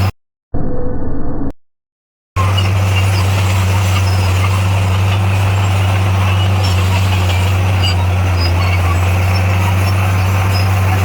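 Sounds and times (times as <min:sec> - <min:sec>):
heavy diesel engine running: 0:02.4 - 0:11.0.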